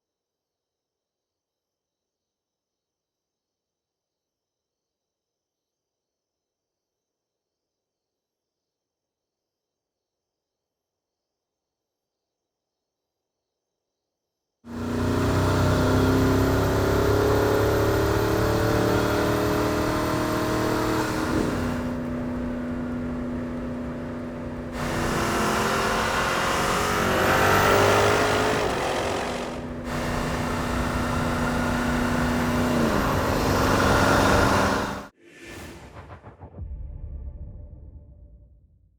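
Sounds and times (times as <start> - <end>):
car engine accelerating: 14.7 - 35.1.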